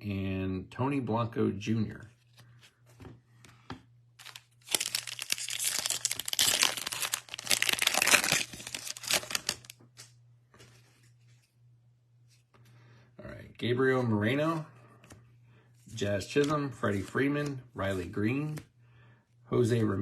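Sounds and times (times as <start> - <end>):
wrapper tearing and crinkling: 4.2 - 9.8.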